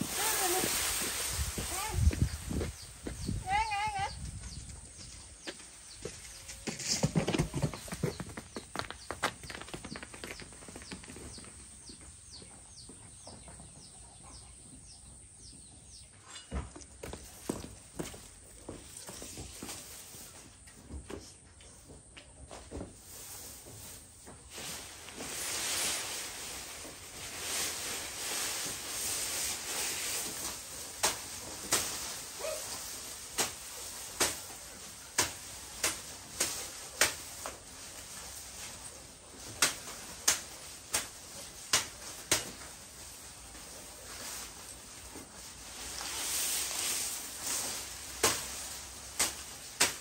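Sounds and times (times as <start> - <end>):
rustling: 0.0 - 11.8, 22.5 - 50.0.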